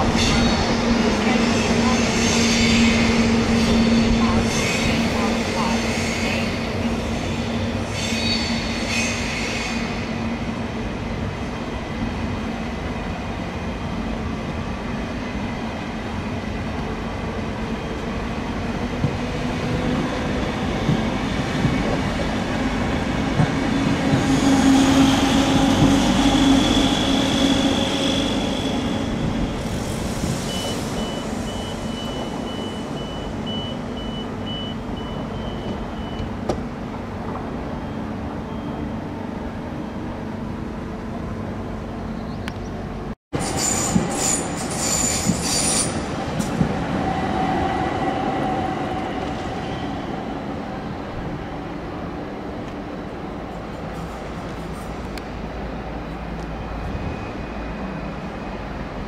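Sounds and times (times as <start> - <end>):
train wheels rumbling on rail: 0.0 - 37.9, 40.5 - 59.0
high-pitched wheel squeal: 43.4 - 46.0.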